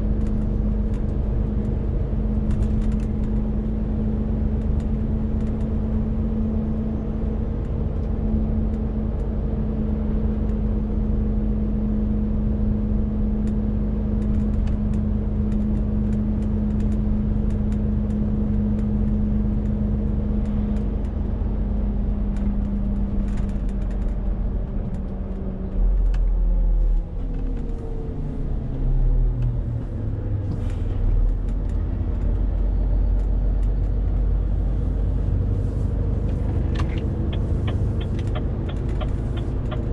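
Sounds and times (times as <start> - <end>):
deep engine rumbles: 0.0 - 39.9
truck diesel engine pulling: 30.3 - 39.9.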